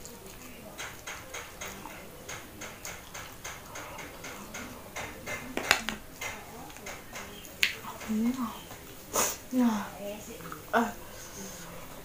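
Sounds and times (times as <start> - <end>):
chewing and lip-smacking: 0.0 - 4.8, 10.3 - 10.7
cutlery clicking on plastic plate: 0.4 - 8.9.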